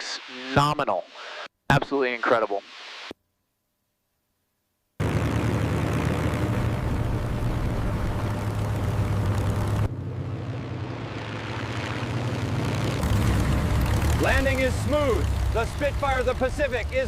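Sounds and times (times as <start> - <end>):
propeller plane engine in flight: 5.0 - 17.0.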